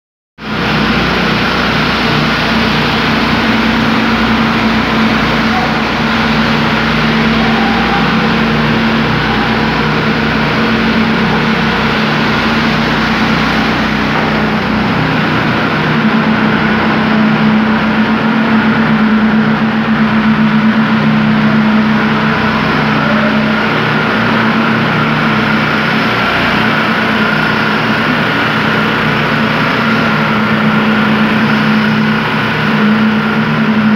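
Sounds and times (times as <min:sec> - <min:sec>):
machinery engine running: 0:00.4 - 0:33.9.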